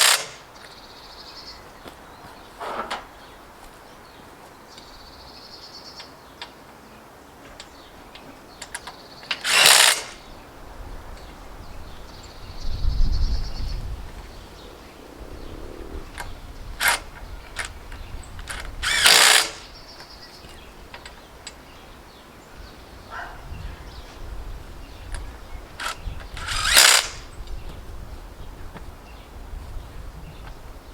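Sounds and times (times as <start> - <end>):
power tool bursts: 0.0 - 0.5, 9.3 - 10.2, 16.8 - 17.0, 18.4 - 19.7, 25.8 - 27.3
birds chirping: 0.0 - 30.9.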